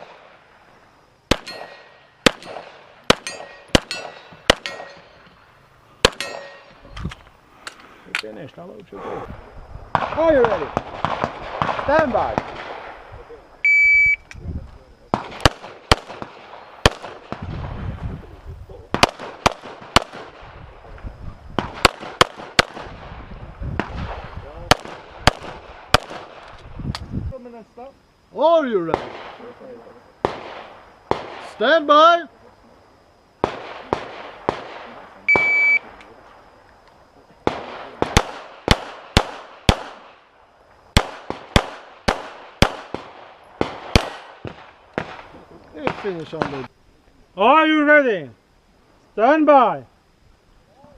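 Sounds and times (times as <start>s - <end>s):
handgun shots with echoes: 1.3s - 5.1s, 6.0s - 6.6s
handgun shots: 6.0s - 6.6s
shot timer beep: 13.7s - 14.2s, 35.3s - 35.8s.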